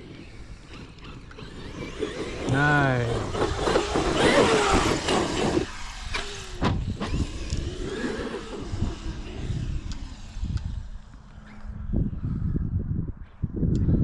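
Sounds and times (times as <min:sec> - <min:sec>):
off-road vehicle engine: 0:00.0 - 0:12.5
tire noise on rough trail: 0:00.0 - 0:14.0
wind noise: 0:00.0 - 0:14.0.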